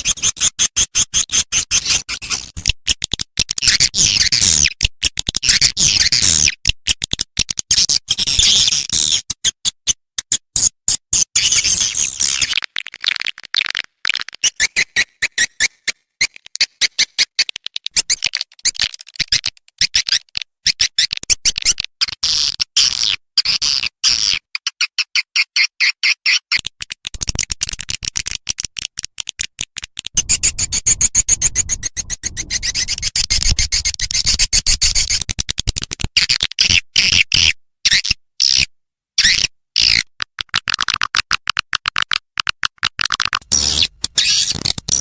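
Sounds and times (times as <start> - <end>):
rapid high bird chirps: 24.0 - 26.6, 30.2 - 35.1, 43.5 - 45.0.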